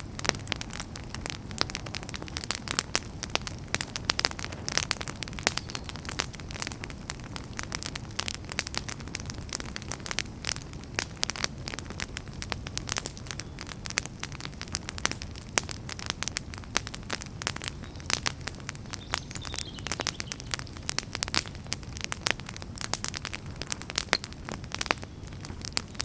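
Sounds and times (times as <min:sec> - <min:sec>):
campfire crackling and popping: 0:00.0 - 0:26.0
low rumble of flames: 0:00.0 - 0:26.0.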